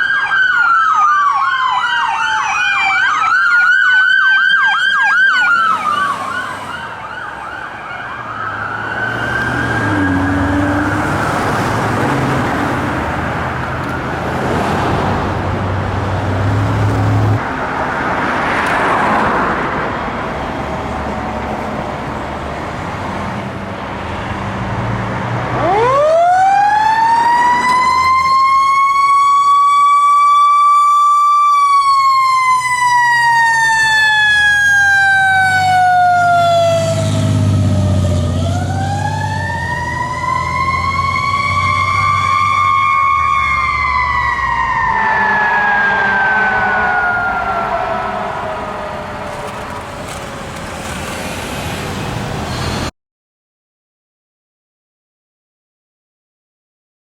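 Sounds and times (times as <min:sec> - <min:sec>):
fire engine siren winding: 0:00.0 - 0:12.2, 0:25.6 - 0:51.4
siren wailing: 0:00.0 - 0:14.7, 0:25.5 - 0:50.6
vehicle engines and road noise: 0:00.0 - 0:52.9.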